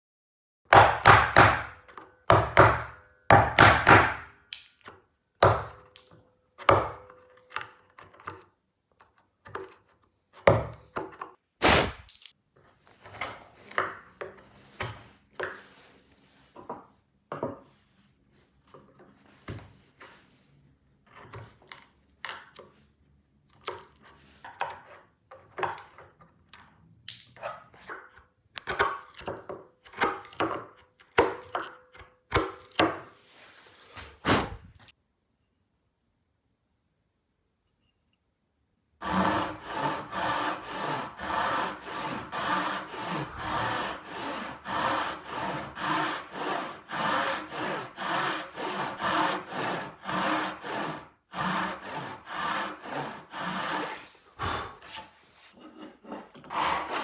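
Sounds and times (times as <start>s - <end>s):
mallet knocking on wood chisel: 0.7s - 4.3s.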